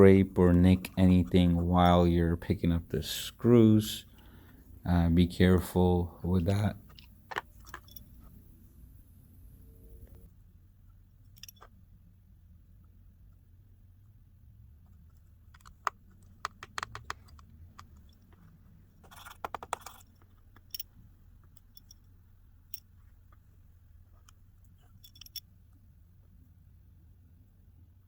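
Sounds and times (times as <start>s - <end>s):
faint low hum: 0.0s - 28.0s
small tools clicking and tapping: 15.5s - 22.1s.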